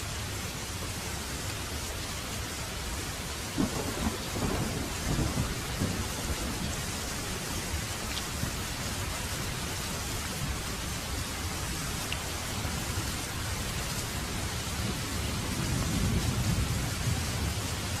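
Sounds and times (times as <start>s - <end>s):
heavy rain: 0.0s - 18.0s
thunder rumbling: 3.6s - 9.1s, 14.6s - 18.0s.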